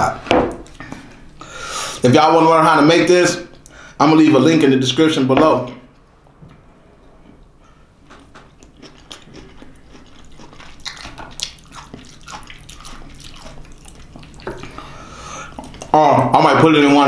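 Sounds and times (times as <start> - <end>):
person chewing food: 8.1 - 16.0.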